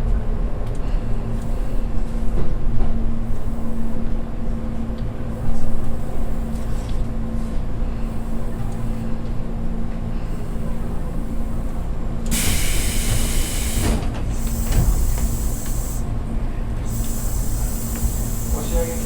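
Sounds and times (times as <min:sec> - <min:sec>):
electric train rumbling: 0:10.3 - 0:19.0
compressed air hiss: 0:12.3 - 0:16.0.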